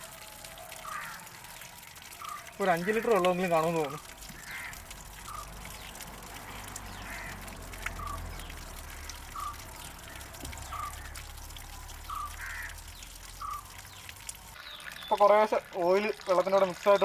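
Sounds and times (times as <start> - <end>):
water pouring from engine drain: 0.0 - 17.0
bird chirping: 7.8 - 9.8, 10.5 - 11.2, 12.1 - 15.3.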